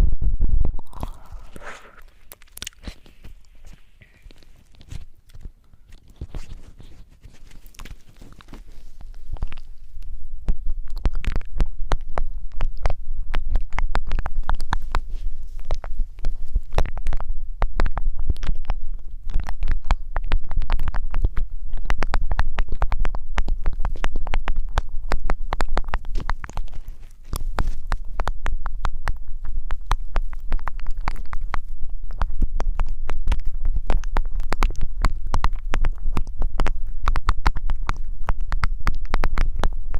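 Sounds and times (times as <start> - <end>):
low rumble: 0.0 - 2.8
rubbing and scratching on microphone: 0.0 - 39.9.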